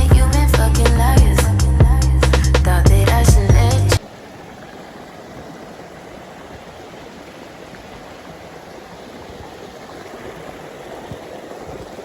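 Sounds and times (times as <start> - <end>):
river water rushing: 4.0 - 12.0.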